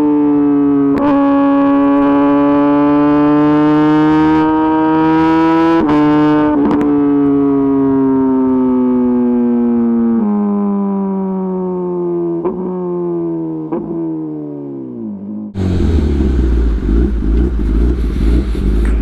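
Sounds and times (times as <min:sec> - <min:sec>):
motorcycle engine revving: 0:00.9 - 0:07.1, 0:13.6 - 0:19.0
sharp exhaust cracks: 0:15.6 - 0:19.0.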